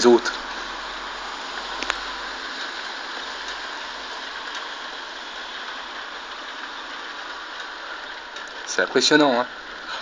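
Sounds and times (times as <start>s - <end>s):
steady rain hiss: 0.0s - 10.0s.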